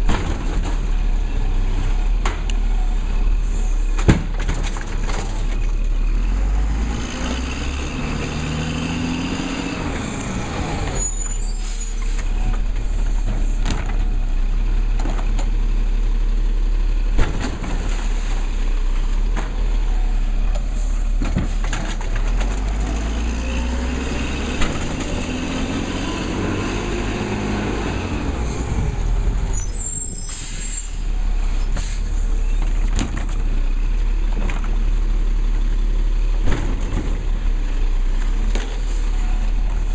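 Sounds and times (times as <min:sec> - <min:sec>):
garbage truck engine revving: 0:05.1 - 0:14.4, 0:18.4 - 0:30.0
air brake hisses: 0:29.8 - 0:32.2.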